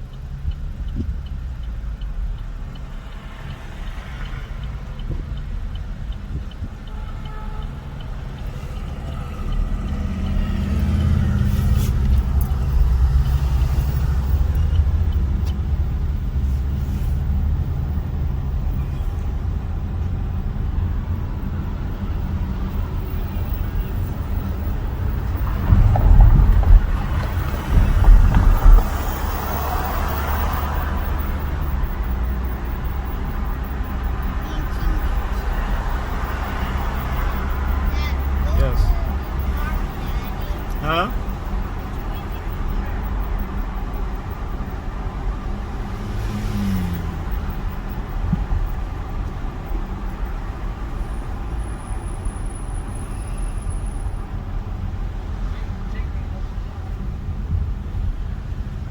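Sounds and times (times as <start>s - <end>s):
car engine and road noise: 0.0s - 58.9s
rush of passing traffic: 0.0s - 58.9s
heavy low thumps: 24.2s - 33.9s.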